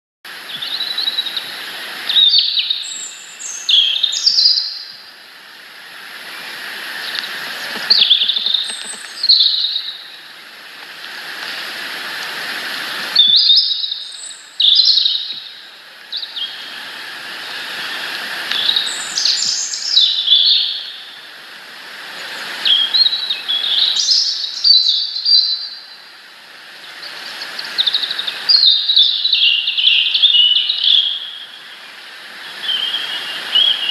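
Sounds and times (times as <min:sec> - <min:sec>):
small songbirds chirping: 0:00.3 - 0:05.3, 0:06.2 - 0:10.4, 0:13.1 - 0:21.3, 0:22.1 - 0:26.1, 0:26.7 - 0:33.9
rushing background noise: 0:04.9 - 0:13.2.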